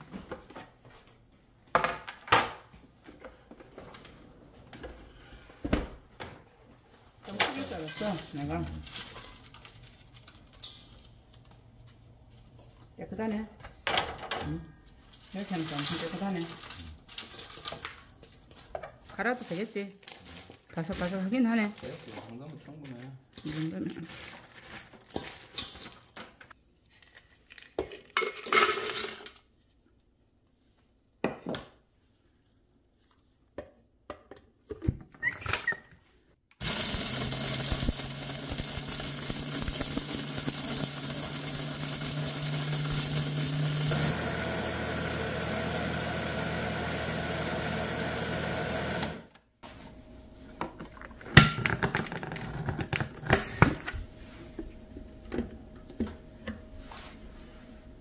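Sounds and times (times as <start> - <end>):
electric blender grinding: 36.6 - 49.3.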